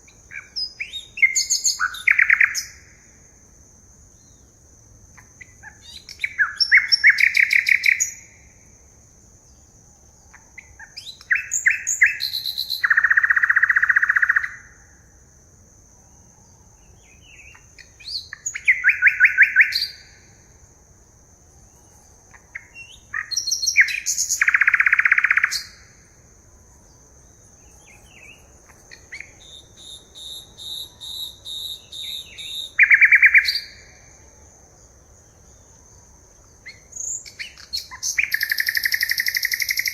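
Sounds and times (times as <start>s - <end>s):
birds singing trilled phrases: 0.0s - 3.0s, 5.1s - 8.5s, 9.5s - 14.8s, 16.8s - 20.4s, 21.7s - 26.1s, 27.3s - 34.1s, 36.5s - 39.9s.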